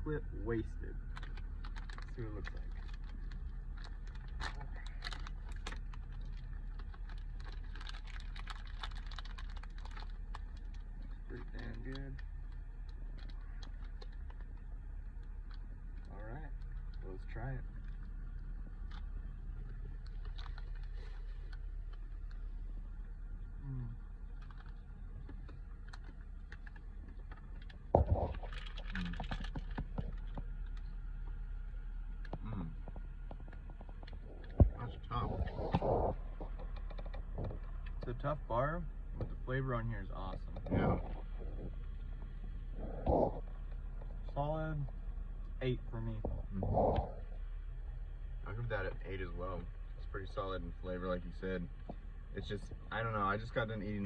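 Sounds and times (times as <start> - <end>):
car road rumble: 0.0 - 54.0
plastic wrapper crinkling: 1.1 - 15.7, 18.8 - 22.4, 24.3 - 30.9.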